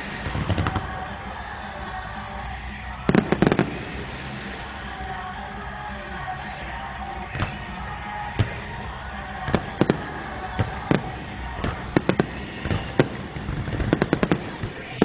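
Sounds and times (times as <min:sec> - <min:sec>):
fireworks bangs: 0:00.0 - 0:15.0
music: 0:00.0 - 0:15.0.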